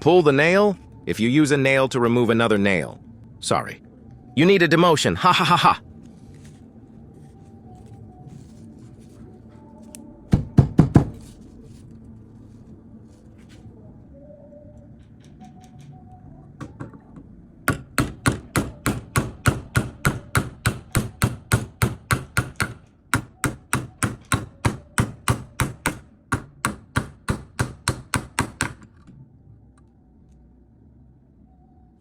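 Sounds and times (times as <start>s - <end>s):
homemade hammer striking: 10.3s - 11.2s, 17.6s - 29.0s.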